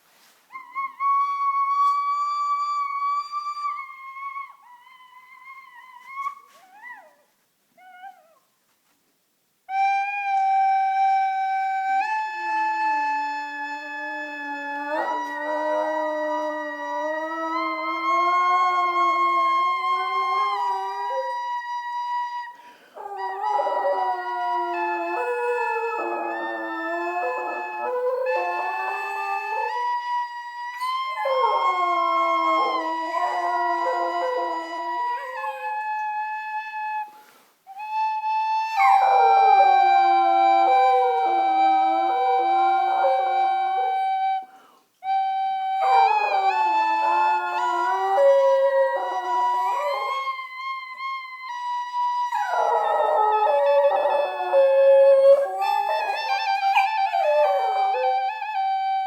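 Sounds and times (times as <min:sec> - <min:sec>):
wind instrument trilling: 0:00.5 - 0:07.1, 0:09.7 - 0:59.0
dog howling: 0:11.9 - 0:21.6, 0:23.0 - 0:30.1, 0:30.8 - 0:36.2, 0:38.6 - 0:44.4, 0:45.7 - 0:50.5, 0:52.1 - 0:59.0
held musical note: 0:37.8 - 0:59.0.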